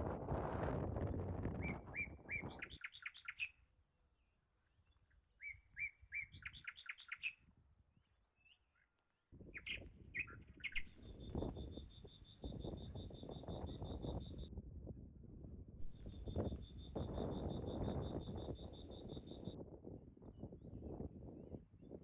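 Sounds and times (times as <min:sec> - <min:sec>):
songbird singing: 0:01.6 - 0:03.6, 0:04.2 - 0:14.5, 0:15.8 - 0:19.6.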